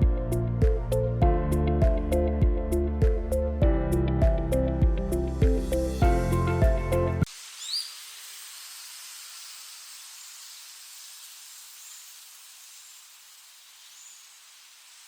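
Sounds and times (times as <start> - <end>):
high outdoor hiss: 7.2 - 15.0.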